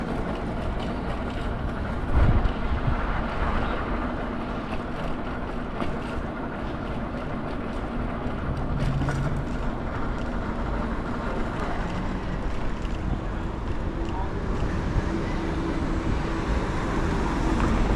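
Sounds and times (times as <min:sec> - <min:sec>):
traffic running steadily: 0:00.0 - 0:17.9
low rumble: 0:06.4 - 0:17.9.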